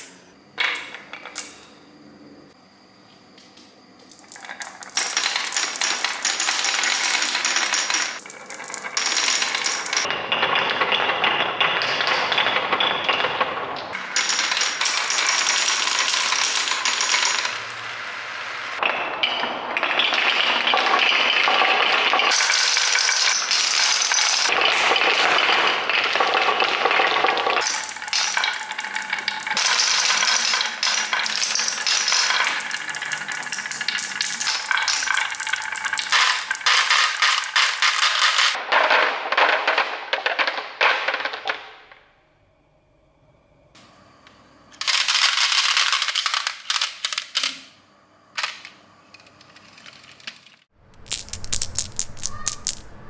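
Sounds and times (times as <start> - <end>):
marbles clattering down a run: 4.1 - 10.1, 13.9 - 17.8, 20.0 - 38.6, 51.0 - 52.9.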